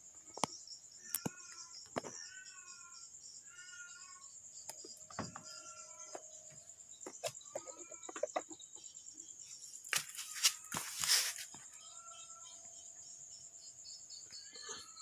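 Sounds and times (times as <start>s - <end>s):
high insect trill: 0.0s - 15.0s
chickens clucking: 7.0s - 8.9s.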